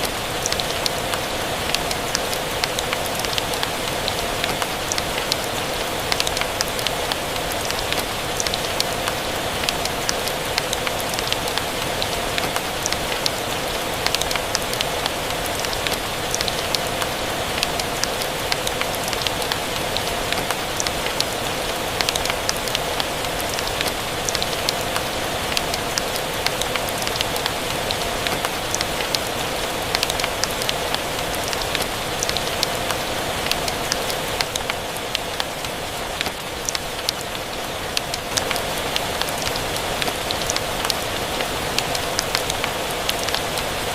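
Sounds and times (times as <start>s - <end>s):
steady rain: 0.0s - 43.9s.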